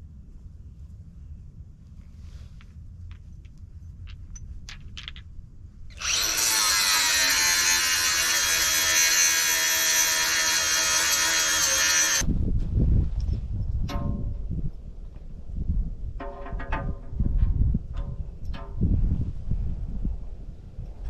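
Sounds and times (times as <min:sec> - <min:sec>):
handheld power tool running: 0:06.0 - 0:12.2.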